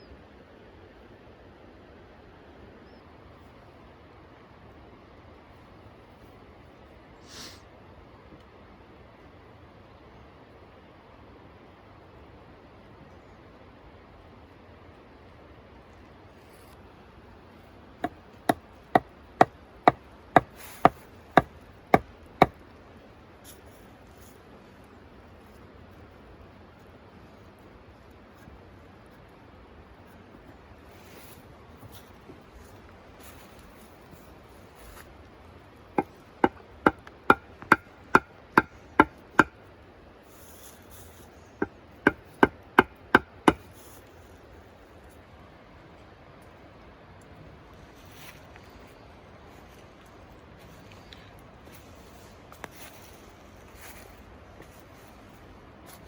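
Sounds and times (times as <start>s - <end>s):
hand tool striking wood: 18.0s - 22.6s, 36.0s - 39.6s, 41.6s - 43.7s.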